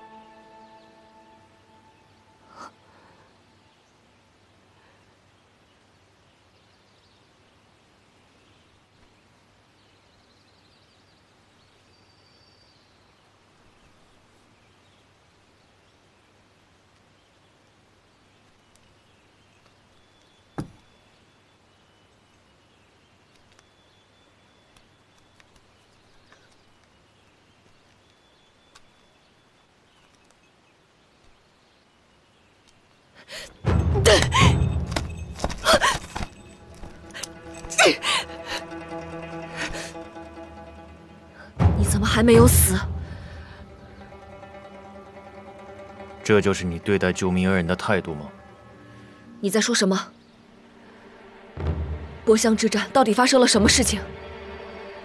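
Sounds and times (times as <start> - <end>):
dramatic sound effect and music: 36.6 - 49.4, 50.5 - 55.0.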